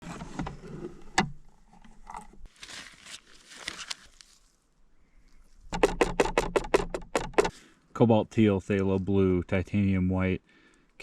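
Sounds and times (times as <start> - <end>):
rustling and scraping: 0.0 - 4.6
sharp knock: 5.8 - 7.5.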